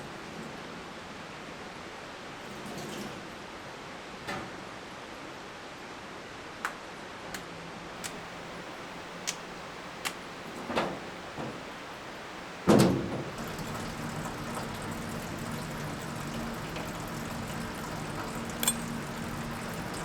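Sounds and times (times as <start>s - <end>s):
running water rushing: 8.1s - 20.0s.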